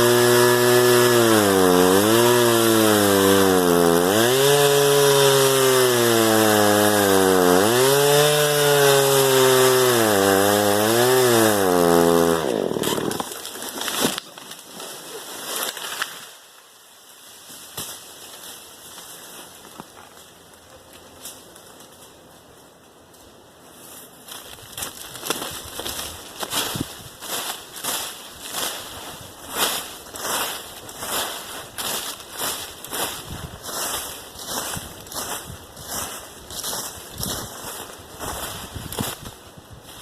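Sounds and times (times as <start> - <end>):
chainsaw running at high revs: 0.0 - 13.4.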